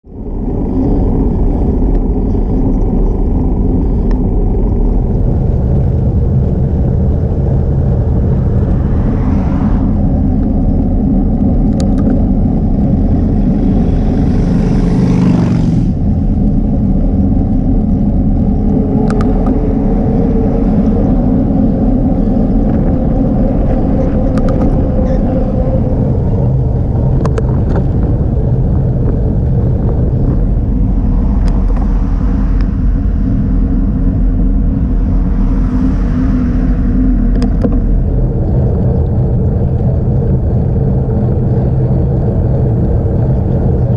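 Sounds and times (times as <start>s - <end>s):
bicycle road rumble: 0.0s - 43.9s
wind buffeting microphone: 0.0s - 43.9s.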